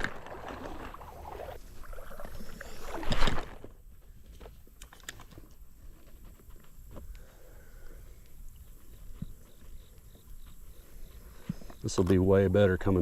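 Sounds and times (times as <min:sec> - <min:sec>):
water splashing in a creek: 0:00.0 - 0:03.7.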